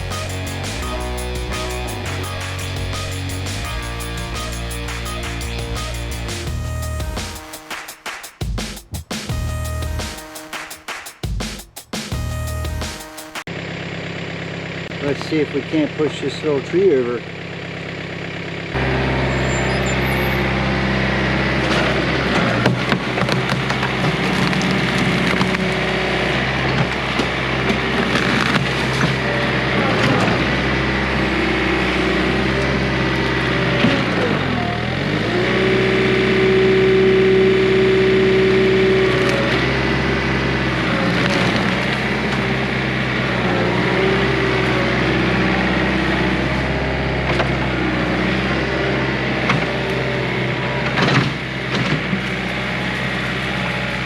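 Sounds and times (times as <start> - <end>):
diesel engine under load: 0.0 - 7.2, 13.5 - 54.0
wood cracking and splintering: 21.7 - 25.9.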